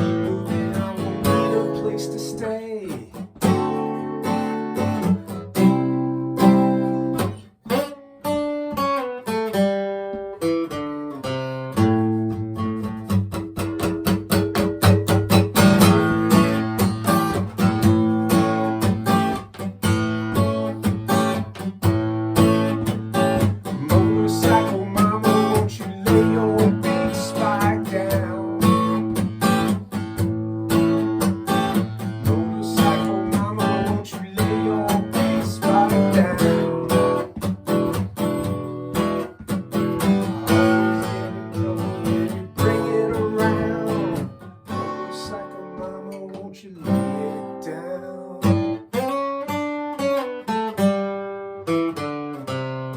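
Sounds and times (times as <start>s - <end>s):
acoustic guitar playing: 0.0s - 52.9s.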